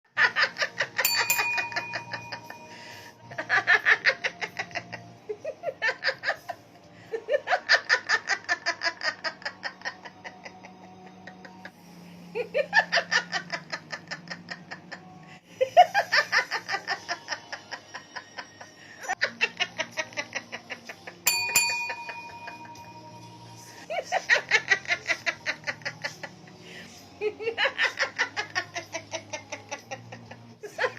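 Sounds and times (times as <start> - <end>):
hearty laughter: 0.2 - 21.2, 23.6 - 30.9
ringing tone: 1.1 - 3.2, 21.3 - 23.9.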